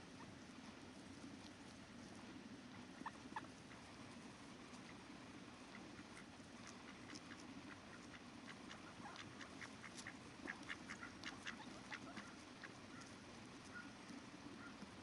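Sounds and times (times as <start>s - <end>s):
ducks quacking: 5.6s - 14.0s.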